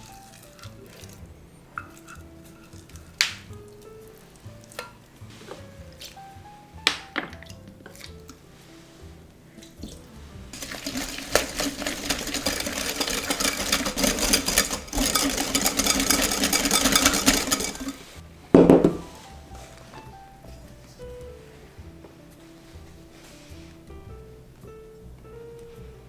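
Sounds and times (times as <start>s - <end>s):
whisk clattering in glass bowl: 0.0s - 3.5s, 10.5s - 18.2s.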